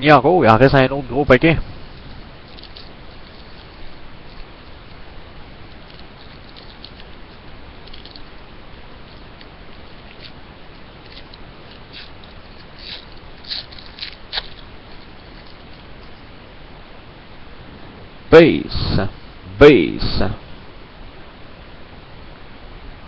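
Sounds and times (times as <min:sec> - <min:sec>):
background hiss: 0:00.0 - 0:23.0
card packaging crinkling: 0:05.6 - 0:08.4, 0:09.0 - 0:16.2.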